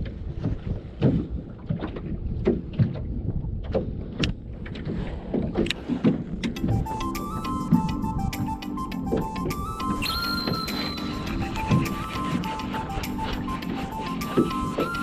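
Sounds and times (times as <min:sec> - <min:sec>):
water slapping against boat hull: 0:00.0 - 0:06.7
wind on microphone: 0:00.0 - 0:15.0.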